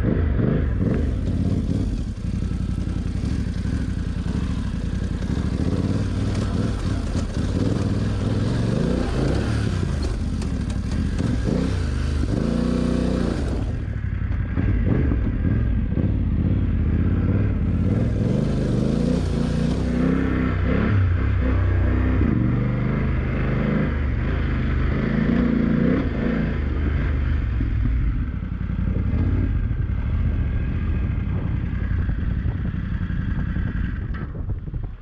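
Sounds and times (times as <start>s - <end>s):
motorcycle engine revving: 0.0s - 35.0s
clatter: 0.7s - 16.2s, 26.8s - 35.0s.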